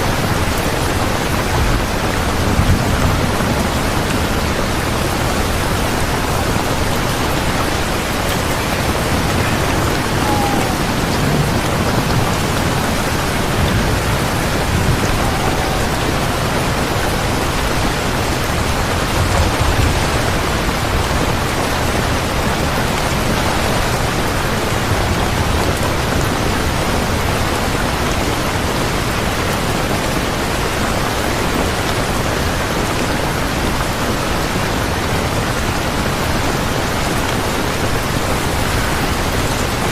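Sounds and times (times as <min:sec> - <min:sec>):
thunder rumbles: 0:00.0 - 0:31.8
heavy rain: 0:00.0 - 0:39.9.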